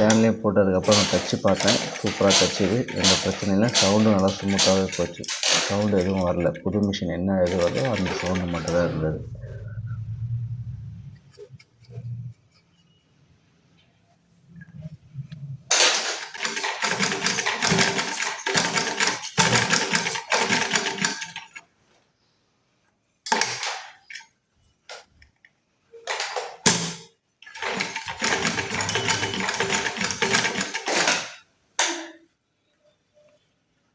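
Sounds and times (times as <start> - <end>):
sewing machine stitching: 0.8 - 6.6, 7.4 - 9.1, 15.7 - 21.6, 27.5 - 31.4.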